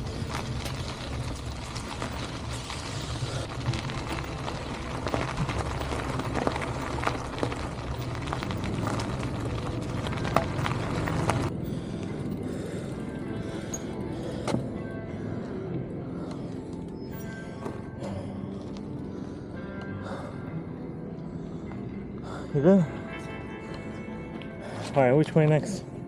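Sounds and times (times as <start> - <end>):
wind rumble on microphone: 0.0 - 11.5
tyres crunching on gravel: 0.0 - 12.9
bike rattling: 0.0 - 14.7.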